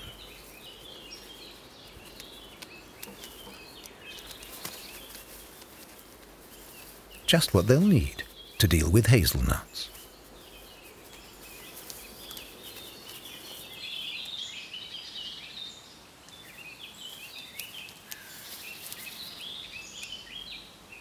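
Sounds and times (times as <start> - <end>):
small birds chirping and twittering: 0.0 - 21.0
faint clicks: 17.5 - 19.0.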